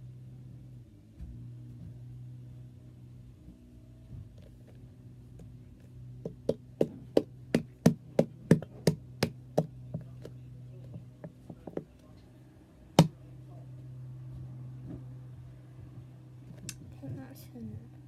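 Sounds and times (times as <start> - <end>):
knocks on a hard surface: 6.2 - 10.3, 10.9 - 11.9.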